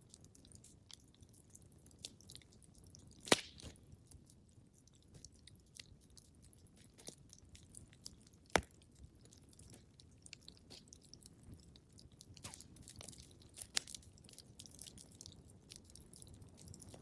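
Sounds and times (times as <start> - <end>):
wood fire crackling: 0.0 - 17.0
loud pop of fire: 3.2 - 3.7.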